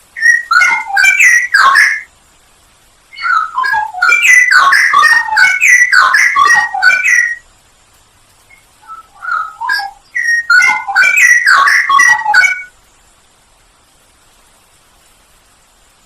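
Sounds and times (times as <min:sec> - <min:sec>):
bird singing whistled phrases: 0:00.2 - 0:02.1, 0:03.1 - 0:07.4, 0:08.5 - 0:12.7.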